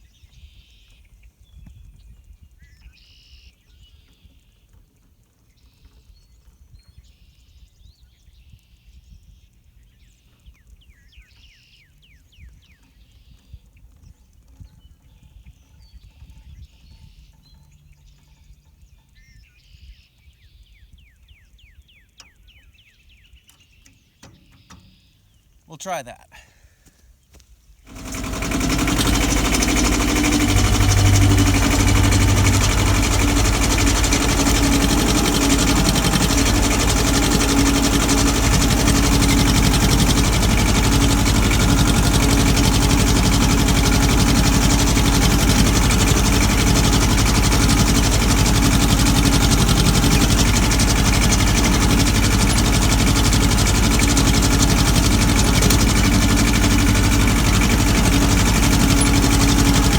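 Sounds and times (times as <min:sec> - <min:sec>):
tractor diesel engine running: 0:27.9 - 0:59.9.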